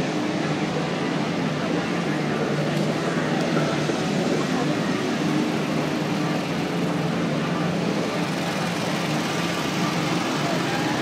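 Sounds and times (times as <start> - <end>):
murmur of crowd voices: 0.0 - 11.0
race car engines running: 0.0 - 11.0.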